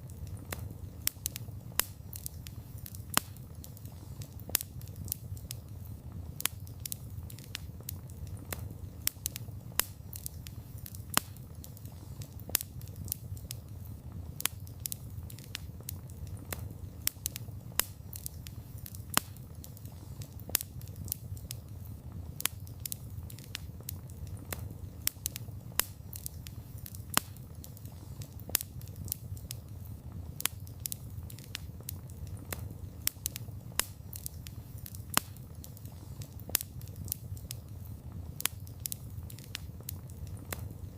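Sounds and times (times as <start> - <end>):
low rumble of flames: 0.0 - 40.9
wood fire snaps and pops: 0.0 - 40.9.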